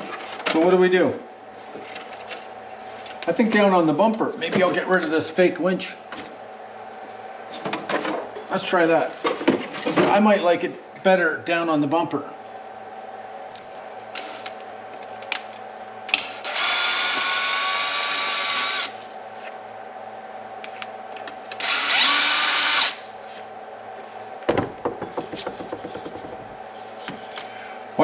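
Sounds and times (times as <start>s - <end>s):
cordless power drill running: 16.2s - 19.0s, 21.6s - 23.1s.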